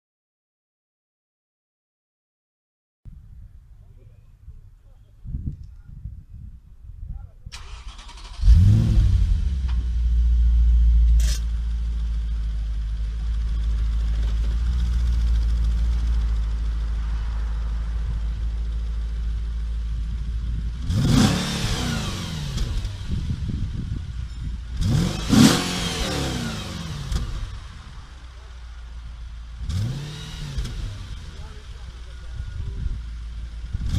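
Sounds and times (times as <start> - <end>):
car engine starting with flare: 7.5 - 33.9
car engine idling: 7.6 - 33.9
car engine revving: 7.6 - 33.9.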